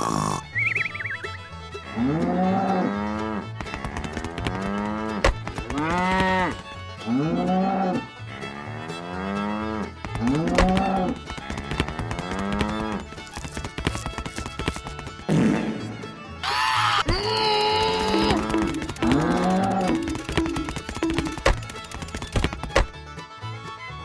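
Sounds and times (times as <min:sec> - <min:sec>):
cattle mooing: 0:00.0 - 0:00.8, 0:02.0 - 0:06.3, 0:17.9 - 0:21.3.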